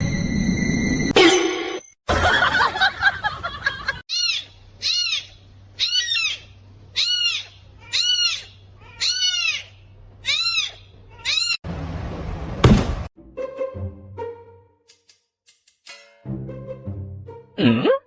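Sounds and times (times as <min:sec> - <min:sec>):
cat meowing: 0:07.0 - 0:11.6
loud knock: 0:12.6 - 0:13.1.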